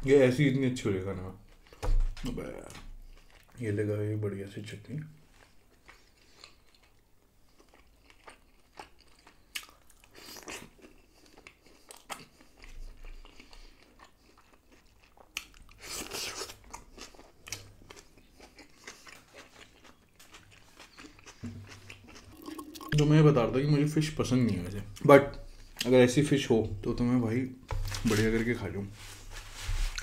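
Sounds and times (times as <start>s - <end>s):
chewing and crunching: 3.0s - 3.6s, 5.4s - 23.1s.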